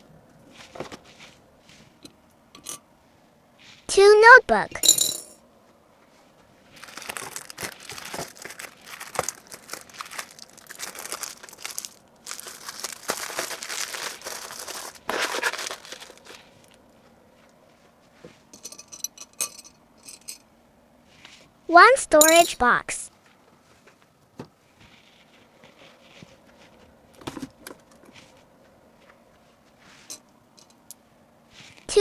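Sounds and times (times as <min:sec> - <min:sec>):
plastic packaging crinkling: 0:06.7 - 0:16.9.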